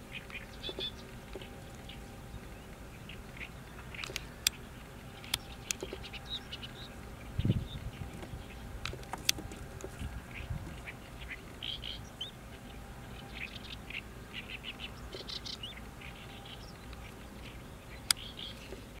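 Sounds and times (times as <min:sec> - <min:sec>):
birds chirping and calling: 0:00.0 - 0:19.0
low outdoor rumble: 0:00.0 - 0:19.0
sharp clicks: 0:03.9 - 0:04.6.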